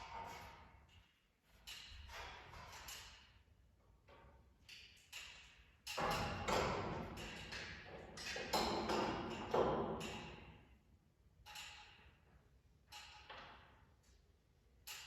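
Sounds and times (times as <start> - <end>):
knocks and clanks: 5.0 - 10.5.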